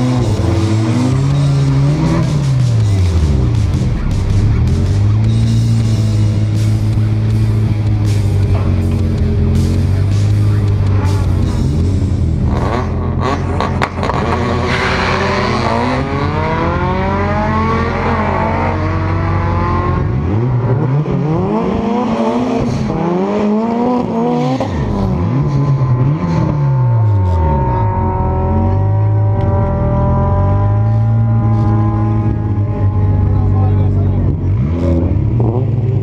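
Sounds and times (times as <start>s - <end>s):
car engine revving: 0.0s - 36.0s
other cars accelerating: 0.0s - 36.0s.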